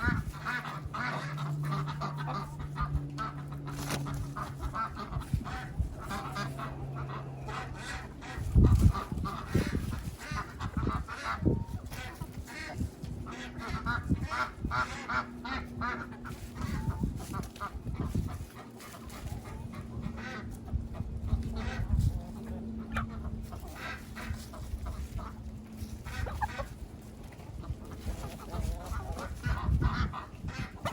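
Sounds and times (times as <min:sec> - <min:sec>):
ducks and chickens honking: 0:00.0 - 0:30.9.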